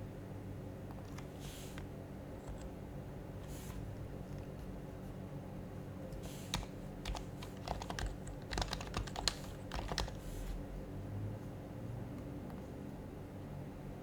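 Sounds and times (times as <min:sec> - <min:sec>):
soft muted keyboard typing: 0:00.8 - 0:04.8, 0:06.1 - 0:10.6.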